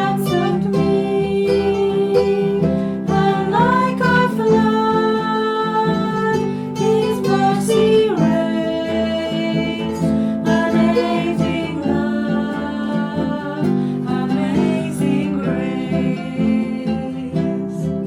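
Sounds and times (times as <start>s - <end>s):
acoustic guitar music: 0.0s - 18.0s.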